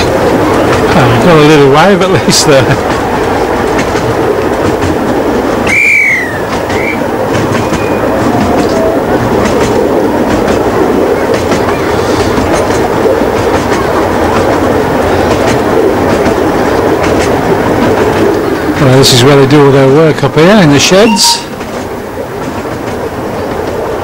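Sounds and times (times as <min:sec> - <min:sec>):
train rumbling: 0:00.0 - 0:24.0
wheels clattering over rail joints: 0:00.0 - 0:24.0
high wheel squeal: 0:05.6 - 0:08.8.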